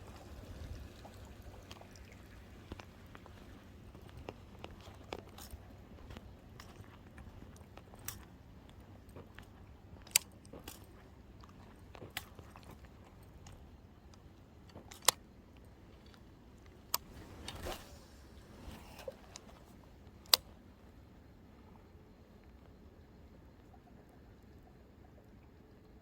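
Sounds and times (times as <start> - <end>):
short rustle: 17.0 - 19.8.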